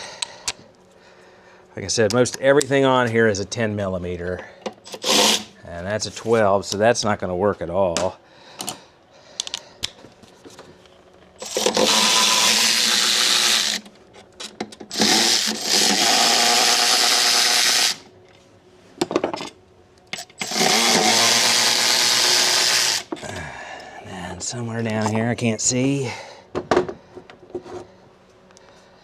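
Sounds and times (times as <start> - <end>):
cordless power tool spinning bolts: 4.8 - 5.6, 11.4 - 13.9, 14.8 - 18.1, 20.2 - 23.1.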